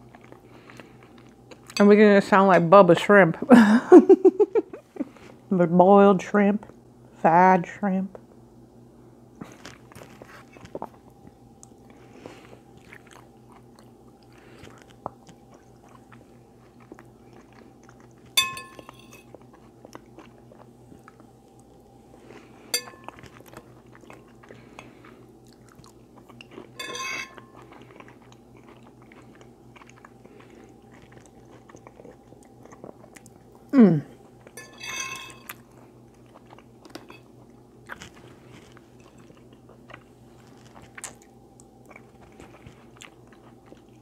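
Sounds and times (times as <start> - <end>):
crunchy chewing and mouth sounds: 0.0 - 1.8, 9.3 - 44.0
faint steady hum: 0.0 - 44.0
utensil clinking on a dish: 18.4 - 19.3, 22.7 - 23.2, 26.8 - 27.6, 34.6 - 35.5.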